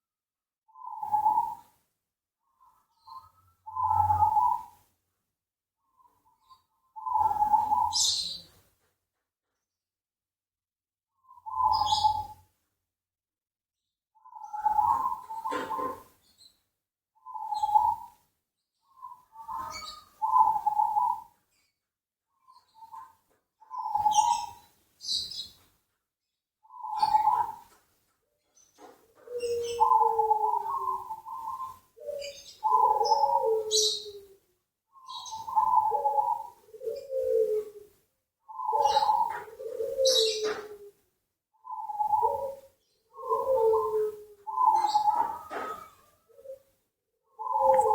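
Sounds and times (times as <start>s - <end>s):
dove cooing: 0.8s - 1.8s, 3.0s - 4.8s, 6.4s - 8.6s, 11.3s - 12.4s, 14.3s - 16.2s, 17.2s - 18.2s, 19.0s - 21.4s, 22.5s - 25.5s, 26.7s - 27.8s, 28.6s - 41.0s, 41.6s - 47.9s.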